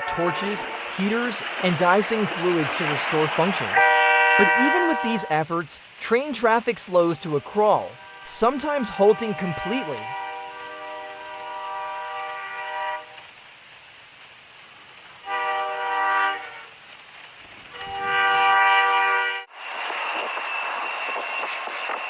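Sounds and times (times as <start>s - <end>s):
train air horn blasts: 0.0s - 5.4s, 7.8s - 13.2s, 15.2s - 16.7s, 17.7s - 19.5s
moving train rushing noise: 0.0s - 13.4s, 14.6s - 22.0s.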